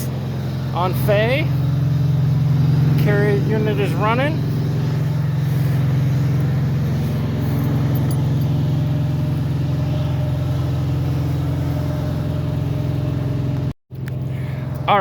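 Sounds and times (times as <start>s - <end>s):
refrigeration unit diesel hum: 0.0s - 15.0s.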